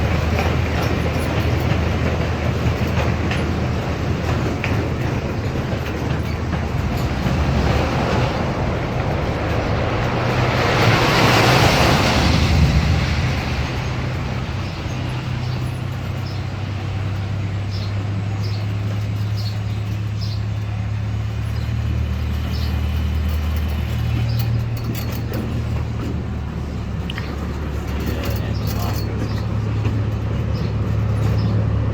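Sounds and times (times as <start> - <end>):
train engine droning: 0.0 - 31.9
broad rush of noise: 4.4 - 18.1.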